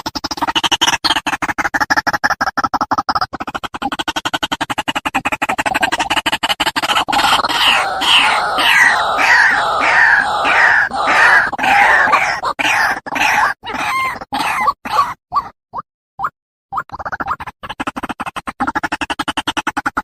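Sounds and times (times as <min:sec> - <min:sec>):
bird calling harshly: 0:07.2 - 0:15.1.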